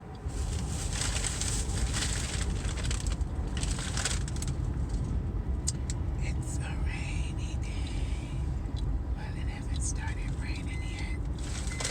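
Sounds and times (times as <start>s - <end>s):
low rumble: 0.0s - 11.9s
food packaging crinkling: 0.4s - 4.6s.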